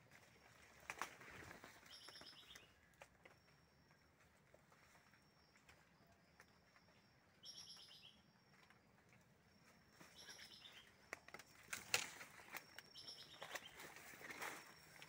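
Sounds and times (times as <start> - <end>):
rustling of leaves: 0.0 - 3.3, 10.0 - 15.0.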